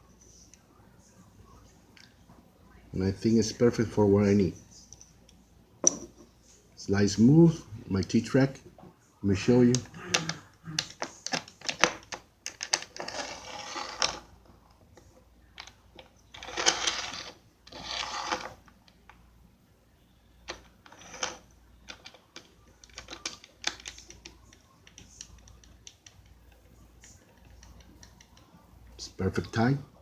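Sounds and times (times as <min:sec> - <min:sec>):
wooden block scraping in track: 0:13.0 - 0:14.2, 0:16.4 - 0:18.6.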